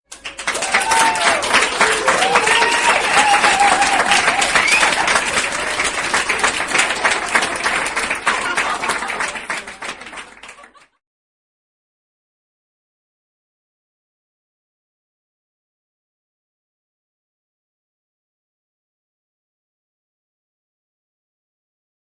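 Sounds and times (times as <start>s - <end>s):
crowd applauding: 0.1s - 11.0s.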